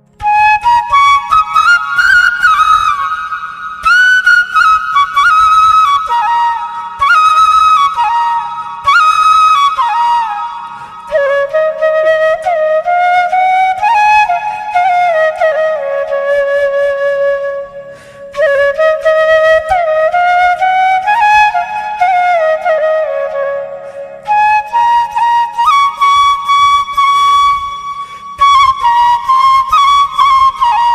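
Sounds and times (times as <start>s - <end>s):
solo flute melody: 0.0s - 30.9s.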